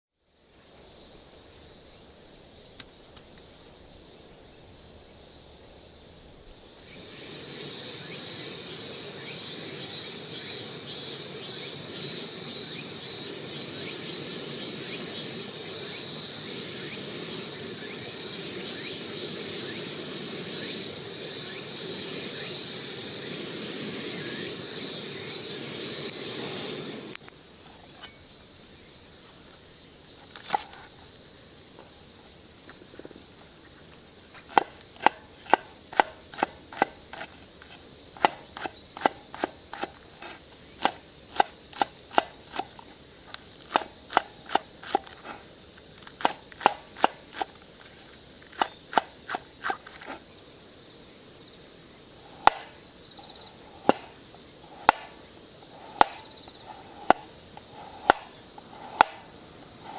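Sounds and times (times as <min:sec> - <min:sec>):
steady high hiss: 0:00.1 - 0:59.9
sharp chopping knocks: 0:34.5 - 0:37.3, 0:38.2 - 0:39.9, 0:46.2 - 0:47.2, 0:52.4 - 0:52.8, 0:53.8 - 0:54.1, 0:54.7 - 0:55.2, 0:55.8 - 0:56.3, 0:57.9 - 0:59.3.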